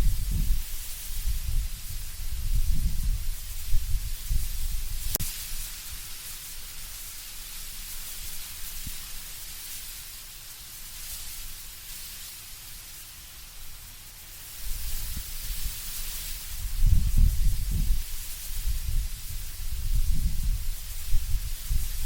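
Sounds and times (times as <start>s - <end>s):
gusting wind rumble: 0.0s - 5.2s, 16.4s - 22.0s
leaves rustling in wind: 0.0s - 22.0s.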